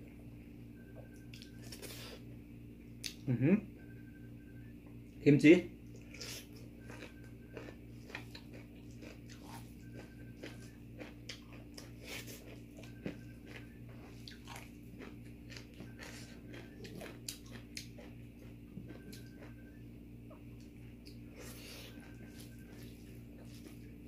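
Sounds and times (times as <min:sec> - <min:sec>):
person chewing crunchy food: 0:05.9 - 0:24.0.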